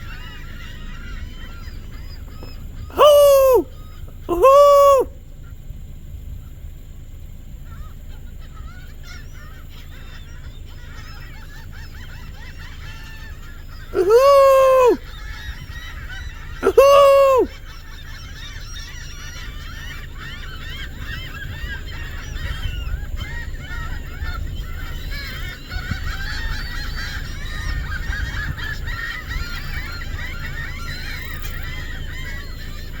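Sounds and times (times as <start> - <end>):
geese honking: 0.8 - 3.7, 4.3 - 5.1, 11.6 - 33.0
low steady rumble: 3.6 - 16.6.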